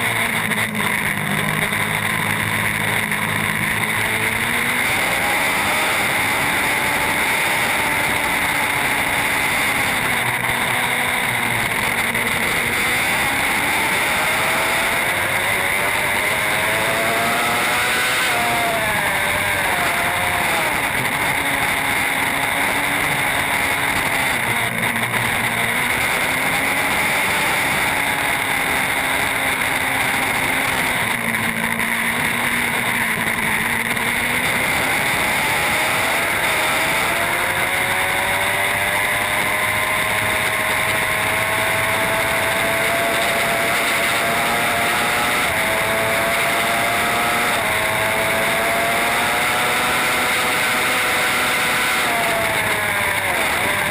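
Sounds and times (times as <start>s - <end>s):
racing motorcycle engine: 0.0s - 53.9s.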